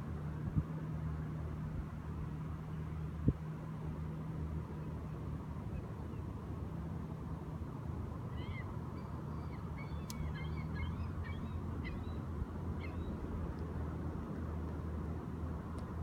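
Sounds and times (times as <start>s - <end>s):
shore birds calling: 8.2s - 14.0s.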